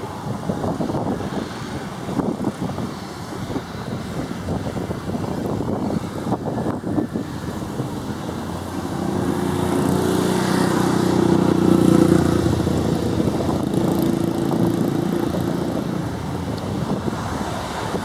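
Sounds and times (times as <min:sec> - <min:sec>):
turboprop aircraft passing: 0:06.6 - 0:18.0.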